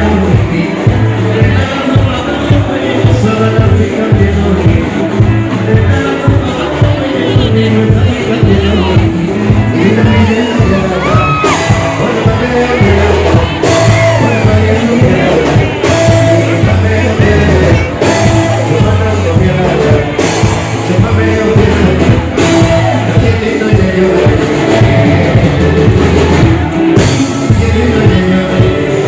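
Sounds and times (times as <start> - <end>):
heavy bass line: 0.0 - 29.0
live band playing loud music: 0.0 - 29.0
person singing: 0.0 - 29.0.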